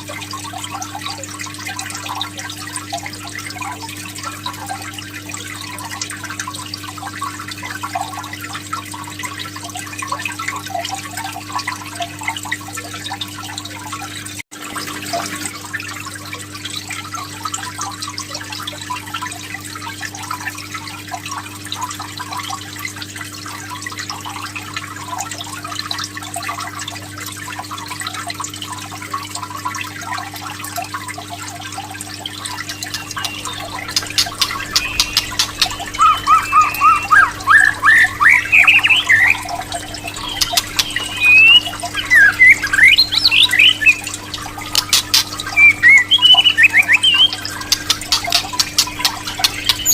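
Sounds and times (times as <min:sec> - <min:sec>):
water trickling and dripping: 0:00.0 - 0:49.9
low hum: 0:32.5 - 0:46.5.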